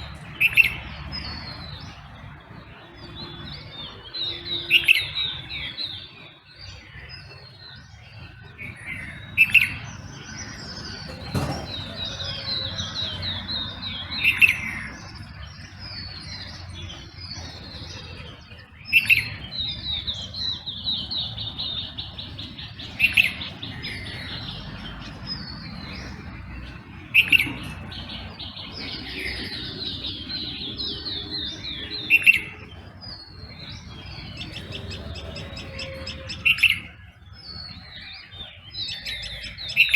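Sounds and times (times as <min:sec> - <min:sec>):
birds chirping and trilling: 0:00.0 - 0:39.9
loud bird call: 0:33.4 - 0:39.9.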